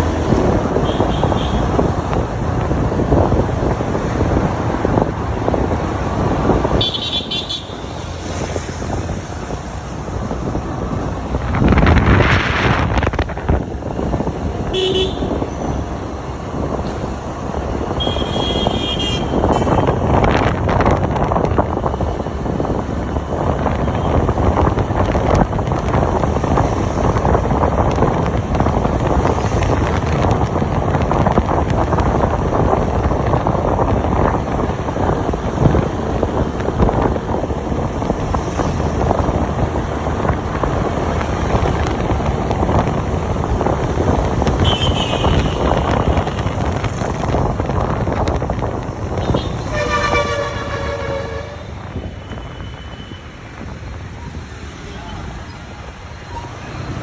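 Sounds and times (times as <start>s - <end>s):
wind buffeting microphone: 0.0s - 7.0s, 7.6s - 57.0s
city traffic rumble: 0.0s - 57.0s
vehicle horn: 0.8s - 1.8s, 6.8s - 7.8s, 14.7s - 15.4s, 18.0s - 20.0s, 44.6s - 46.3s, 49.2s - 51.9s.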